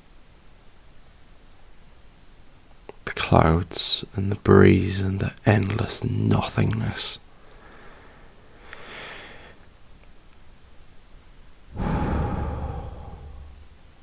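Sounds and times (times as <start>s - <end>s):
faint airy hiss: 0.0s - 14.0s
wind rush on microphone: 11.8s - 13.9s.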